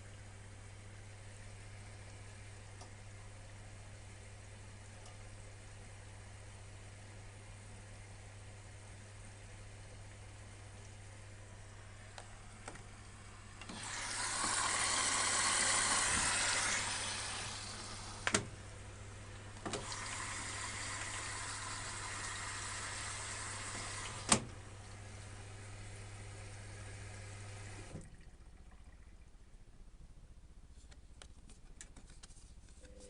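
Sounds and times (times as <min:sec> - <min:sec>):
washing machine water rushing: 0:11.8 - 0:29.1.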